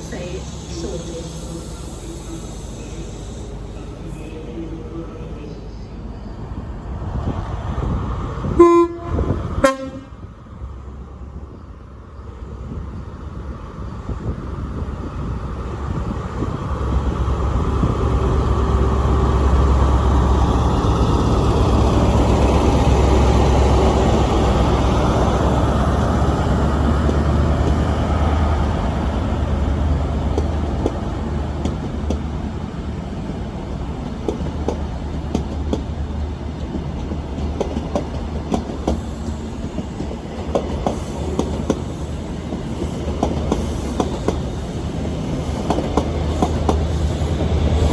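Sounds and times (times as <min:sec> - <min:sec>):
train rumbling: 0:00.0 - 0:47.9
train wheels clicking over rail joints: 0:34.0 - 0:36.0, 0:36.6 - 0:47.9.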